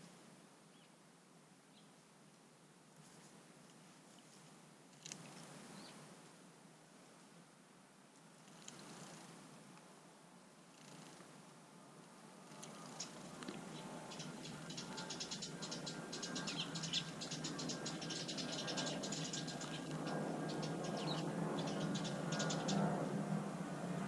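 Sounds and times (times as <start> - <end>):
low steady hum: 0.0 - 24.0
small birds chirping: 12.4 - 23.2.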